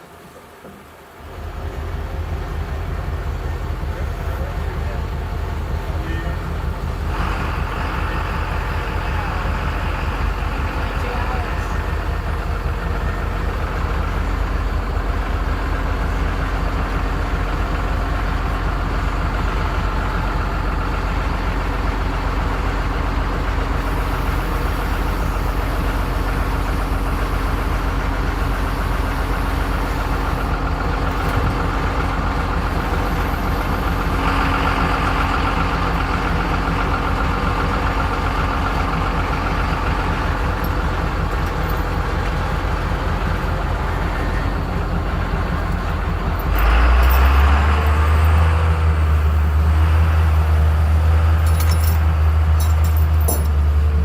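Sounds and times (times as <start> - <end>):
vehicle engine running: 1.1 - 54.0.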